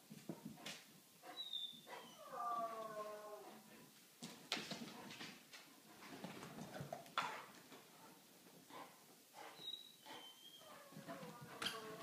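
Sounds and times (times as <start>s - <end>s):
dogs scuffling and tapping: 4.2s - 7.9s.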